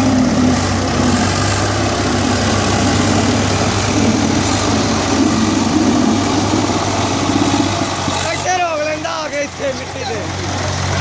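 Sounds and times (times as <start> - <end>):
tractor engine droning: 0.0 - 11.0.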